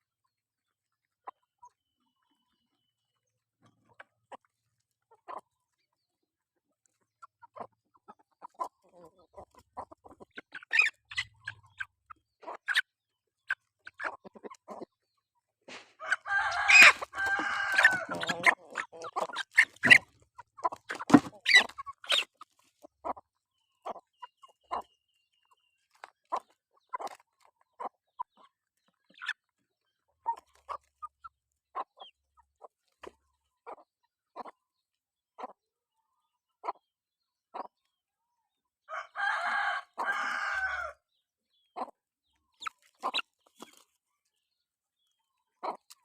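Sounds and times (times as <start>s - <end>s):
chickens clucking: 0.1s - 46.0s
rooster crowing: 16.0s - 18.4s, 38.9s - 41.0s.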